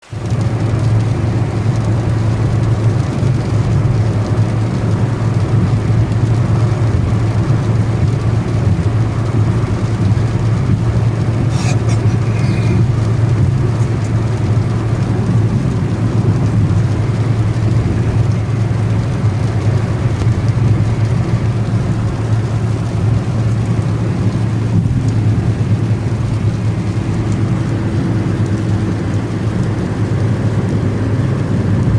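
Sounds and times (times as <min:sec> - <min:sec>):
steady rain: 0:00.0 - 0:31.9.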